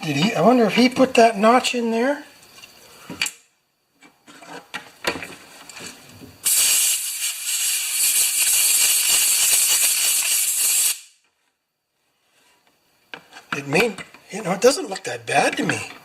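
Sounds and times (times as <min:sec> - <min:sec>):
loud spraying hiss: 0:06.4 - 0:11.2.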